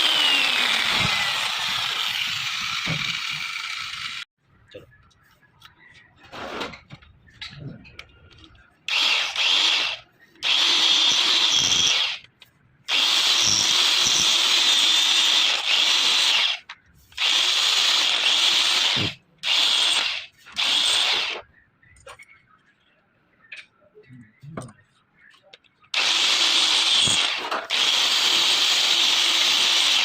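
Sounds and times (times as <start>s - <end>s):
power tool whining: 0.0s - 4.3s, 8.9s - 12.3s, 12.9s - 21.4s, 26.0s - 30.0s.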